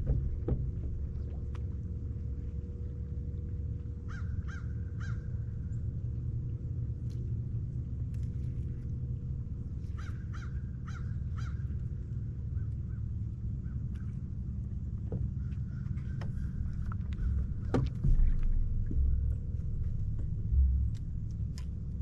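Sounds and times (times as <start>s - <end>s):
steady low rumble: 0.0s - 22.0s
crows cawing: 4.1s - 5.3s, 10.0s - 11.6s.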